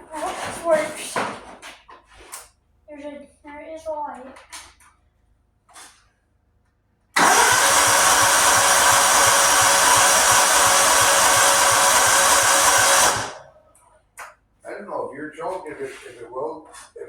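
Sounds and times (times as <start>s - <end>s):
electric starter cranking engine: 7.2s - 13.5s.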